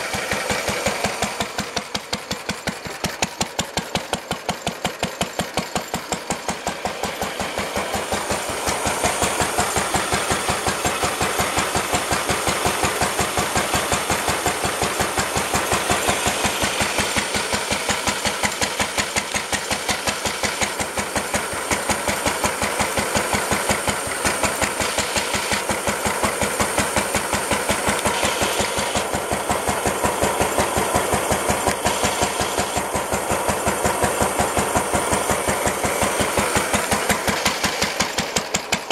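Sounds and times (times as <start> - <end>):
stationary engine running: 0.0 - 38.9.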